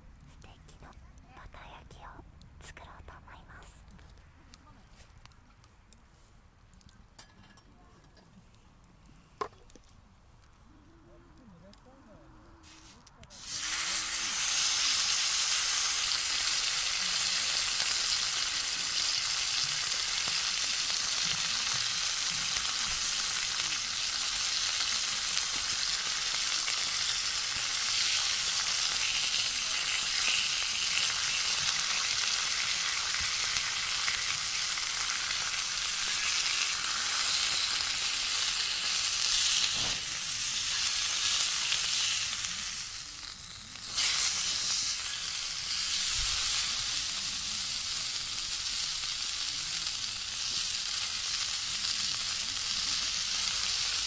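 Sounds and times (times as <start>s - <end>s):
food sizzling in a pan: 12.6s - 54.0s.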